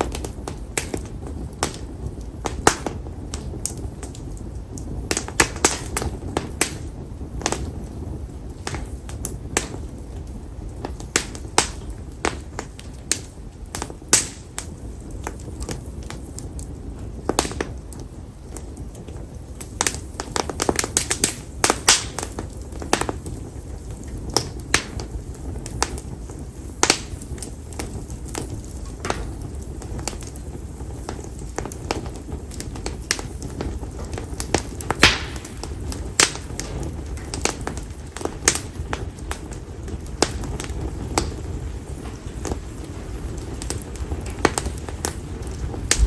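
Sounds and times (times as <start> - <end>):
campfire crackling and popping: 0.0 - 46.0
low rumble of flame: 0.0 - 46.0.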